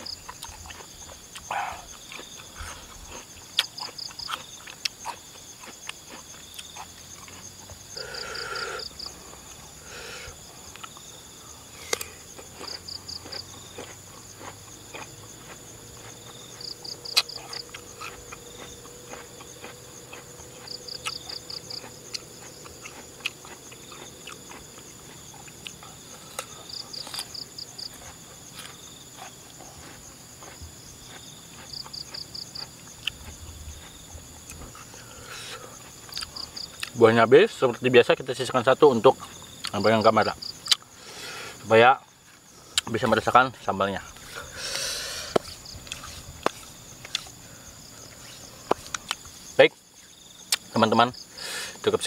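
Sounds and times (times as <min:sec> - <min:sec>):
crisp crunching and chewing: 0:00.0 - 0:08.0, 0:11.8 - 0:35.0, 0:35.6 - 0:37.0, 0:44.1 - 0:49.4
insects shrilling: 0:00.0 - 0:52.0.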